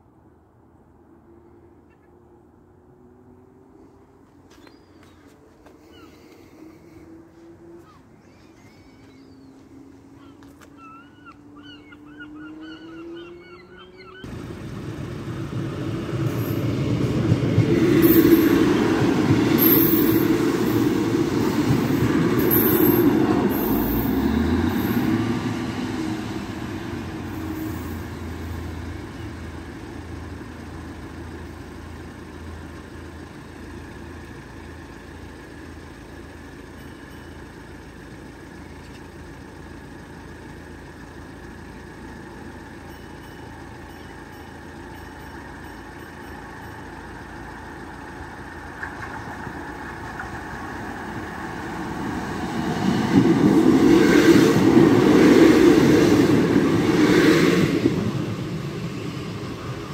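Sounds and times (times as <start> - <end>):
train engine and wheels rumbling: 0.0 - 59.9.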